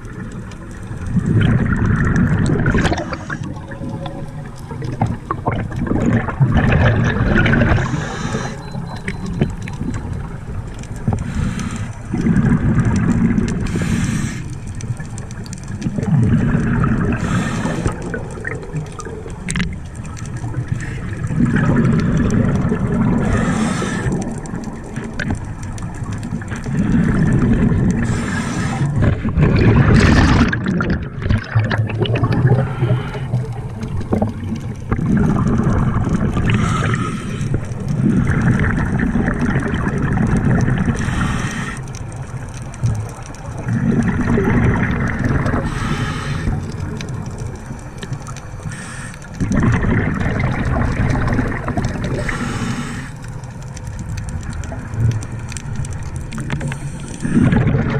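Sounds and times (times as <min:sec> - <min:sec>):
exhaled bubbles gurgling: 0:00.0 - 0:57.9
diver inhaling through regulator: 0:07.6 - 0:09.1, 0:11.2 - 0:12.1, 0:13.6 - 0:14.6, 0:17.0 - 0:18.3, 0:23.1 - 0:24.4, 0:28.0 - 0:29.4, 0:32.4 - 0:33.6, 0:36.4 - 0:38.7, 0:40.9 - 0:42.0, 0:45.5 - 0:46.9, 0:48.6 - 0:49.5, 0:52.0 - 0:53.3, 0:56.6 - 0:57.6.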